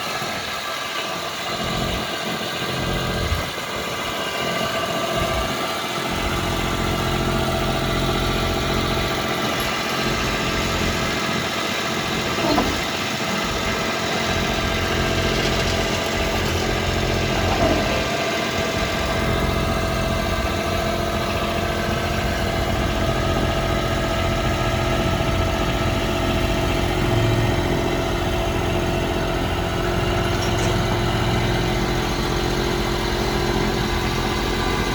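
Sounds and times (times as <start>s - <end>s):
loader engine running: 0.0s - 34.9s.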